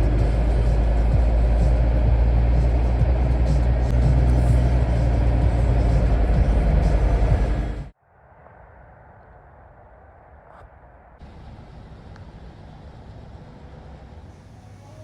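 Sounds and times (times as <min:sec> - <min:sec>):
truck engine droning: 0:00.0 - 0:07.9, 0:11.2 - 0:15.0
road noise: 0:00.0 - 0:15.0.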